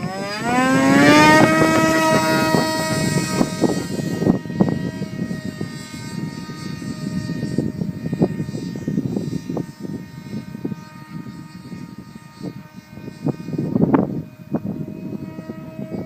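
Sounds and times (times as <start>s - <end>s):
model plane motor whine: 0.0s - 16.0s
wind buffeting microphone: 0.0s - 16.0s.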